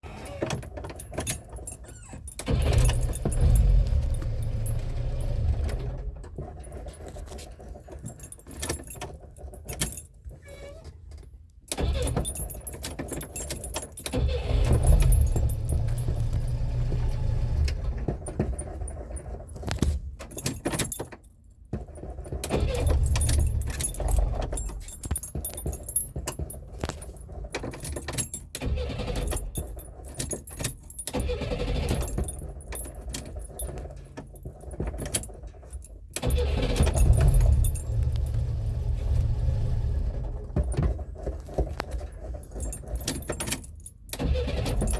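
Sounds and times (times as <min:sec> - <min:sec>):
car starter cranking engine: 0:00.0 - 0:09.8, 0:11.7 - 0:21.0, 0:21.9 - 0:25.6, 0:26.4 - 0:44.9
clicks and rattles: 0:00.4 - 0:10.4, 0:11.0 - 0:39.3.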